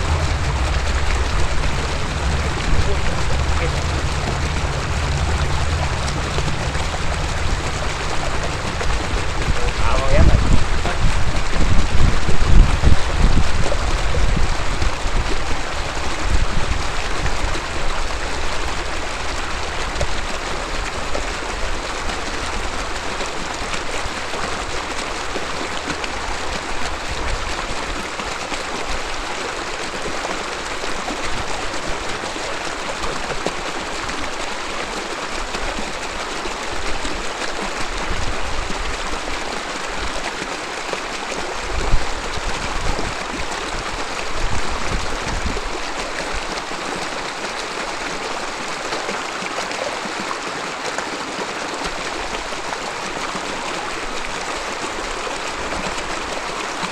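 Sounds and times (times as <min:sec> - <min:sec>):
river babbling over rocks: 0:00.0 - 0:56.9.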